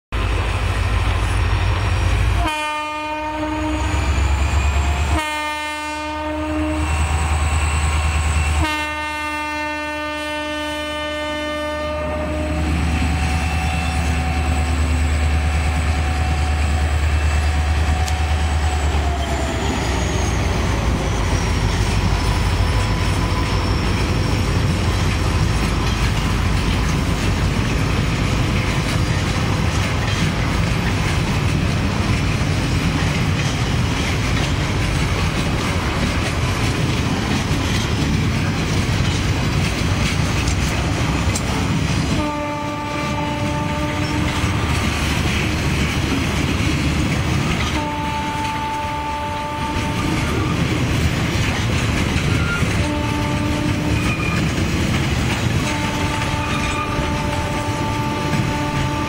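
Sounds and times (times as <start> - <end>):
train rumbling past: 0.1 - 59.0
locomotive air horn blasts: 2.3 - 4.2, 4.9 - 7.1, 8.5 - 15.1, 42.1 - 44.8, 47.6 - 50.6, 52.7 - 54.3, 55.6 - 59.0
wheels clacking on rail joints: 11.7 - 59.0.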